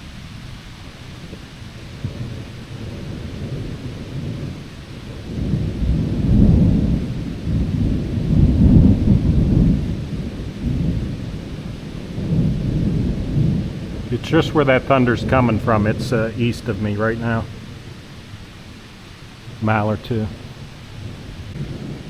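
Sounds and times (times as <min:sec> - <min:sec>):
distant thunder rumbling: 0:00.8 - 0:22.0.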